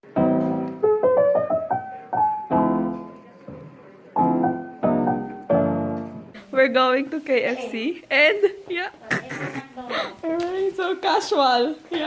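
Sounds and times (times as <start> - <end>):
rising piano run: 0.0 - 3.3, 4.1 - 6.4
piano chords ringing: 0.0 - 6.4.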